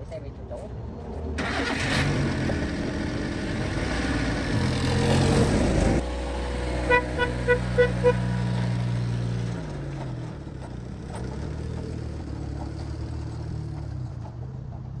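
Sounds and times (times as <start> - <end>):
car engine running: 1.4 - 14.9
car horn toot: 6.8 - 8.4.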